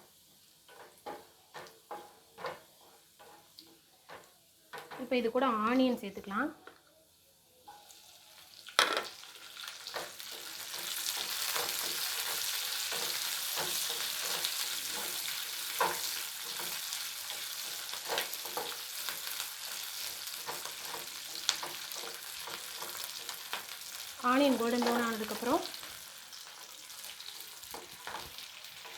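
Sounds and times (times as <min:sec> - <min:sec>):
onion sizzling in oil: 0:00.0 - 0:28.9
spoon scraping and tapping pan: 0:00.6 - 0:05.1, 0:09.9 - 0:23.8, 0:24.6 - 0:25.5, 0:27.6 - 0:28.9
onion clattering into pan: 0:08.7 - 0:23.8.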